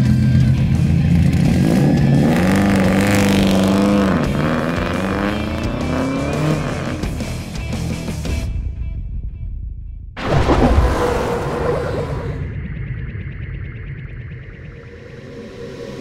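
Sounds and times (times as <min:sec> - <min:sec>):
car engine revving loudly: 0:01.1 - 0:07.2.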